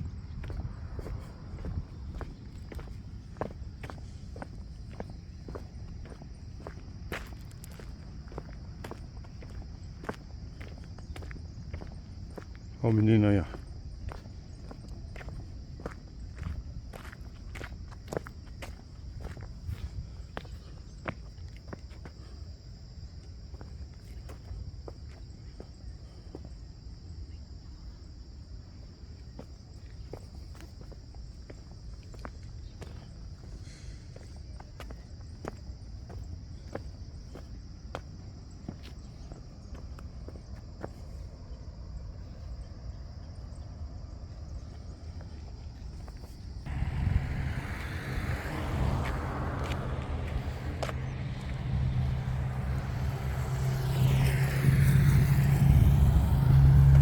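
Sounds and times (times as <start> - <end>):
crickets chirring: 0.0 - 57.0
footsteps crunching: 0.3 - 25.8, 48.9 - 52.9
vehicle engine running close by: 46.6 - 57.0.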